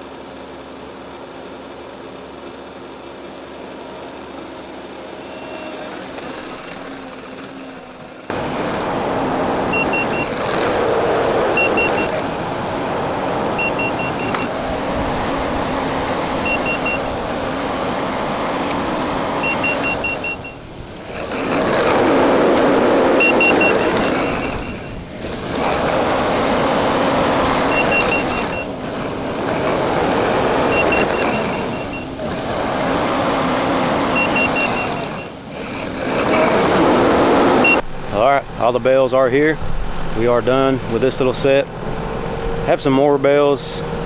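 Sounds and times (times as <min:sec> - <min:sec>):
diesel engine running hard: 0:00.0 - 0:44.0
reverse alarm beeps: 0:09.7 - 0:10.9, 0:11.5 - 0:12.2, 0:13.6 - 0:14.5, 0:16.4 - 0:17.1, 0:19.4 - 0:20.6, 0:23.2 - 0:25.0, 0:27.4 - 0:28.7, 0:30.6 - 0:32.1, 0:34.1 - 0:35.4, 0:37.6 - 0:37.8.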